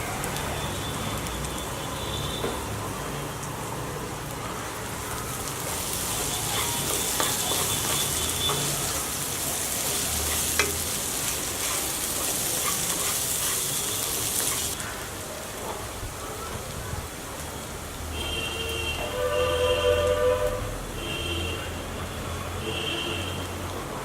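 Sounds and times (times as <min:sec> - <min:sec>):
chicken sizzling in a pan: 0:03.0 - 0:15.7
spatula scraping a pan: 0:05.7 - 0:14.8.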